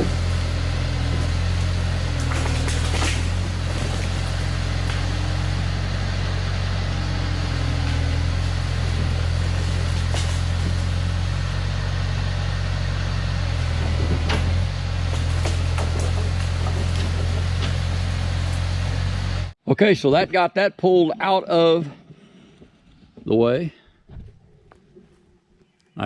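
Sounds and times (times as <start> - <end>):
diesel engine running: 0.0 - 19.6.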